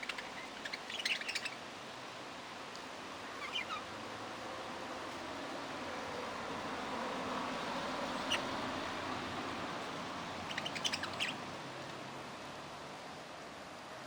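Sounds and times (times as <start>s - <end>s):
parrots chirping: 0.0s - 1.6s, 3.3s - 3.9s, 8.2s - 8.6s, 10.3s - 11.4s
steady background hiss: 0.0s - 14.0s.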